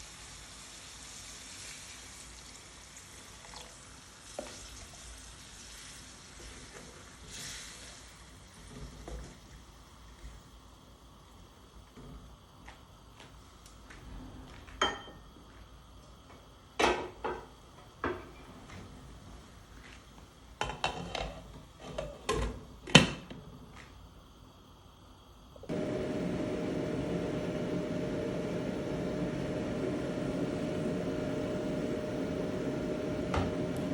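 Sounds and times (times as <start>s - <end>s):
kitchen appliance whirring: 25.7s - 33.9s.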